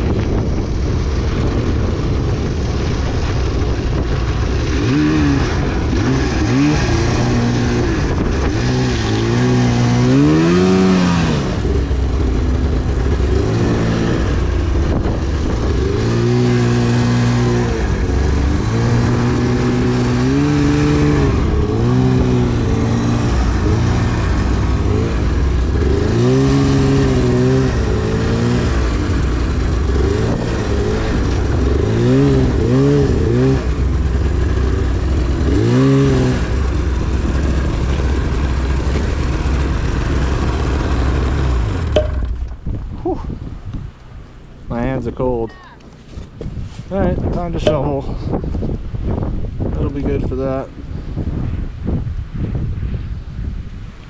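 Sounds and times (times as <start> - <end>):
snowmobile engine revving: 0.8 - 42.0.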